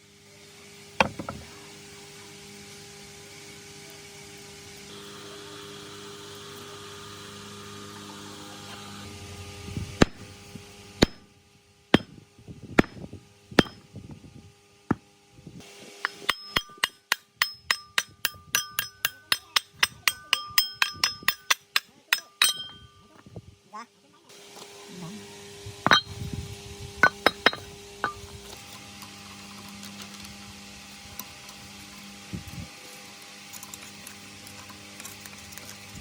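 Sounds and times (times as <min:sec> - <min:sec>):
steady machine hum: 0:00.0 - 0:04.2, 0:04.8 - 0:23.6, 0:24.3 - 0:32.6
hammer striking metal: 0:11.0 - 0:11.3, 0:12.0 - 0:12.2, 0:12.8 - 0:13.0, 0:13.6 - 0:13.8, 0:16.0 - 0:23.0, 0:25.9 - 0:26.1, 0:27.0 - 0:28.2.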